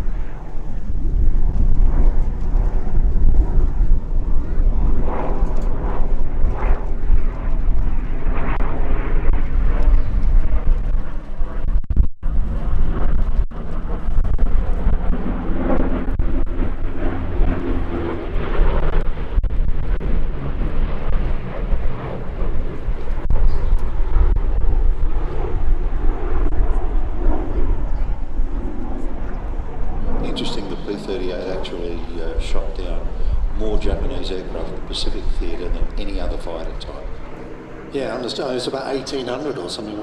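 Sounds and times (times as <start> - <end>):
twin piston aircraft engines droning: 0.0 - 11.6, 12.4 - 40.0.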